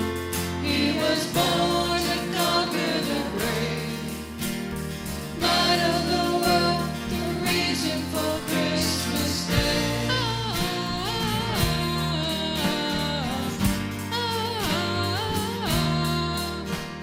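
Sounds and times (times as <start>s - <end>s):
band playing instrumental song: 0.0s - 17.0s
bass: 0.0s - 17.0s
sliding lead melody: 0.0s - 17.0s
drum beat: 5.4s - 12.4s.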